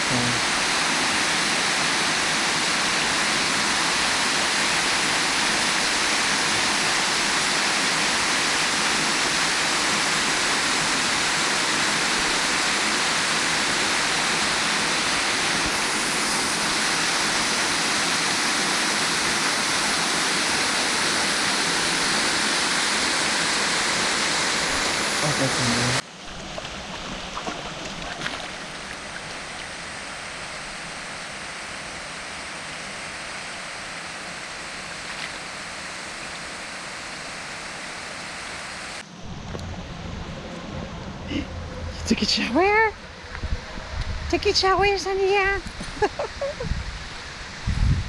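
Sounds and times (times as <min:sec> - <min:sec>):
waterfall rushing over rocks: 0:00.0 - 0:39.1.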